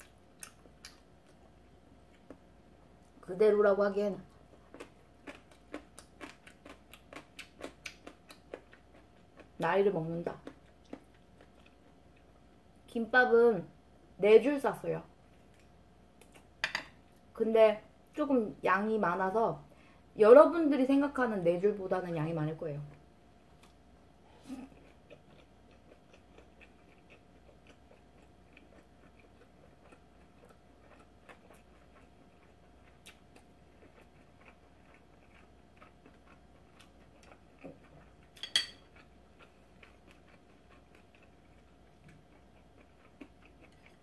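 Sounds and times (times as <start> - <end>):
person chewing: 0.0 - 2.5, 4.3 - 9.6, 10.4 - 12.4, 23.5 - 44.0
faint steady hum: 0.0 - 44.0.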